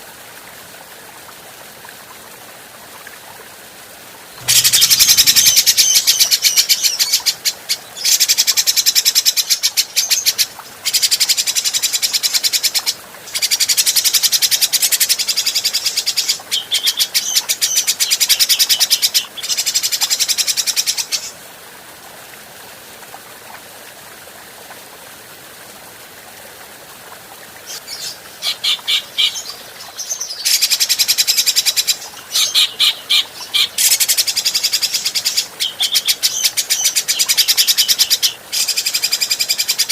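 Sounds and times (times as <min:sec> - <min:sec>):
bird rattling chatter: 0:04.4 - 0:05.7.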